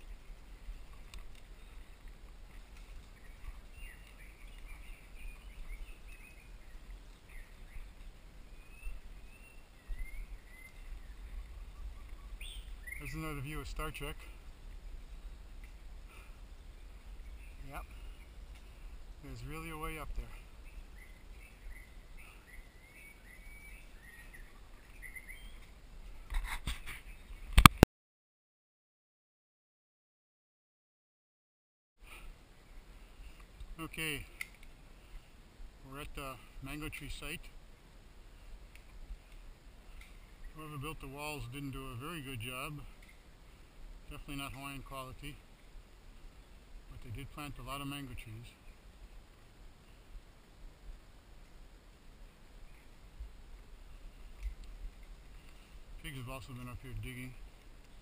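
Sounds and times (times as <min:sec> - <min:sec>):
birds chirping: 0:00.0 - 0:27.8, 0:32.0 - 0:37.6, 0:38.2 - 0:50.3, 0:52.2 - 0:58.0
bird chirping: 0:02.8 - 0:15.4, 0:16.1 - 0:25.8, 0:26.7 - 0:27.7.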